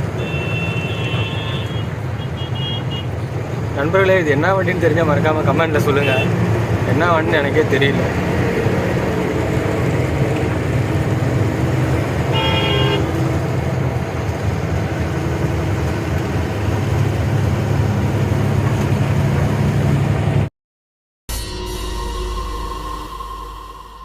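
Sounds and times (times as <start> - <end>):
road noise: 0.0 - 20.5
truck engine: 0.0 - 20.5
vehicle horn blast: 0.1 - 3.1, 5.9 - 6.4, 12.3 - 13.3.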